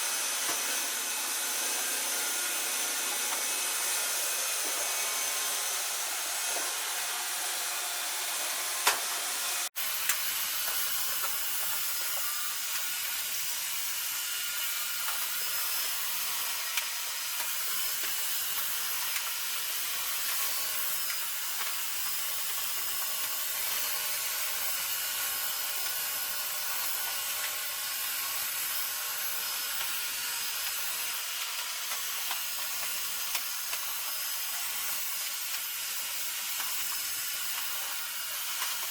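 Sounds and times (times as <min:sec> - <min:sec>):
robot vacuums whirring: 0:00.0 - 0:38.9.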